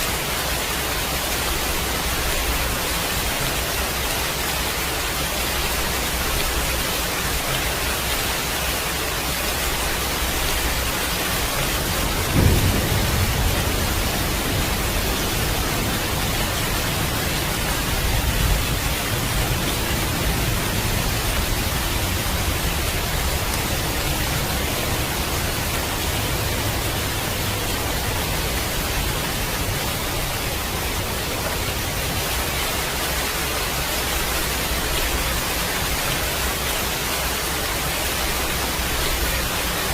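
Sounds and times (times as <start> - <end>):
rain hissing: 0.0 - 39.9
thunder: 10.6 - 19.6.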